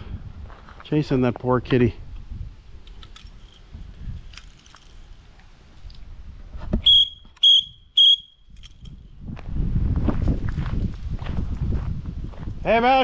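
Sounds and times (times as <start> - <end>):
short high-pitched whistled notes: 6.8 - 8.5.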